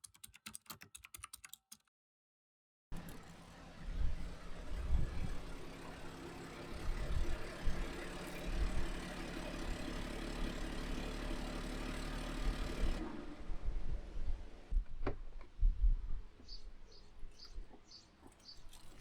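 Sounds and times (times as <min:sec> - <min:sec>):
vehicle engine running: 0:03.0 - 0:14.7
road noise: 0:03.0 - 0:14.8.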